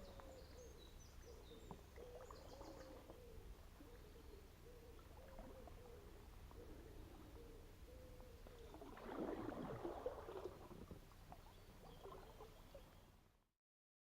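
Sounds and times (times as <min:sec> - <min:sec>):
canoe paddle splashing: 0:04.9 - 0:07.3, 0:08.3 - 0:13.1.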